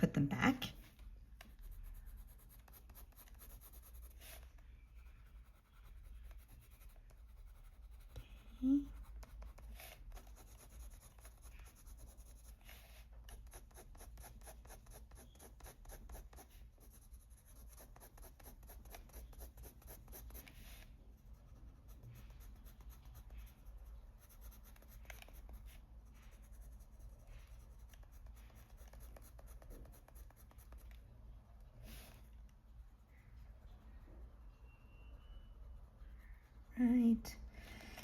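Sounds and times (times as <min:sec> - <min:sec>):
pencil scratching on paper: 0:01.4 - 0:38.0.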